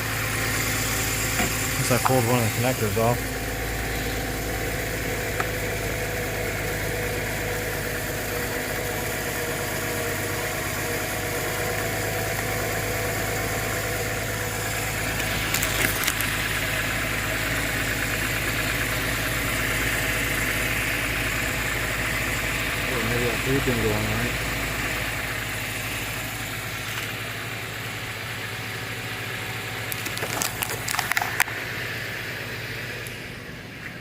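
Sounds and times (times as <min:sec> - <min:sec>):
car engine idling with misfire: 0:00.0 - 0:34.0
quick clicks: 0:29.9 - 0:31.5.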